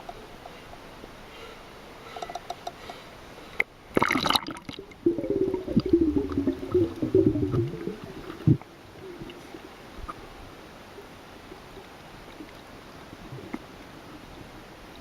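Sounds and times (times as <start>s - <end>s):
sea water splashing and gurgling: 3.8s - 15.0s.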